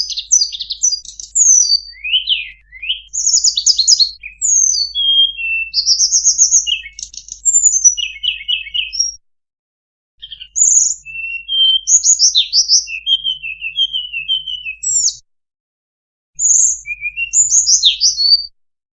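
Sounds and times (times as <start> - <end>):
bird singing high warbles: 0.0 - 9.2, 10.2 - 15.2, 16.4 - 18.5.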